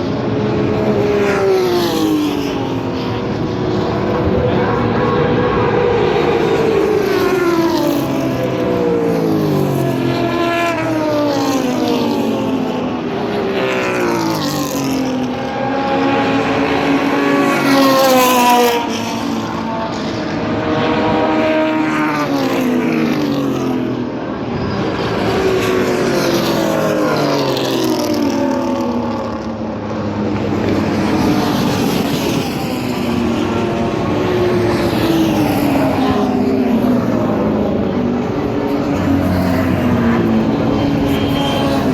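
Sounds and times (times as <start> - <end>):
racing car engines accelerating: 0.0 - 41.9.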